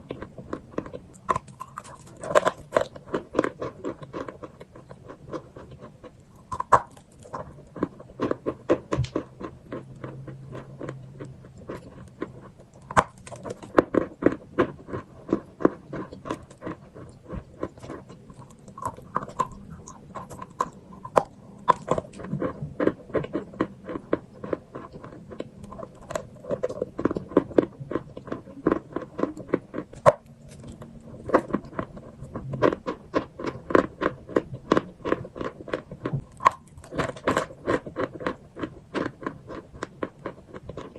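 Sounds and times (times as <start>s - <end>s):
crunching and chewing chalk: 0.0s - 40.9s.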